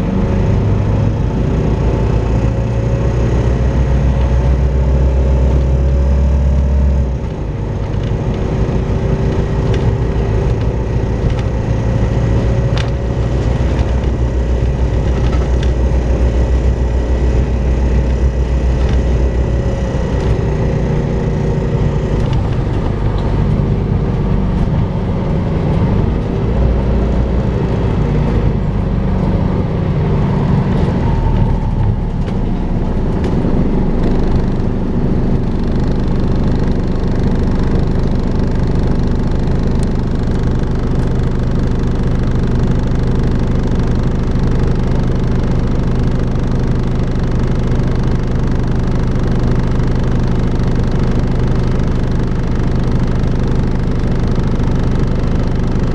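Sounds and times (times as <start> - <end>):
bus engine hoovering hum: 0.0 - 55.9.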